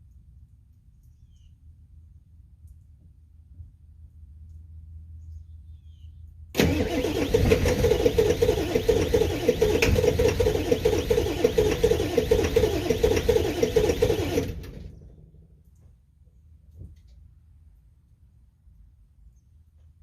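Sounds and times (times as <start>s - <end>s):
diesel engine pulsing cold start: 6.6s - 15.3s.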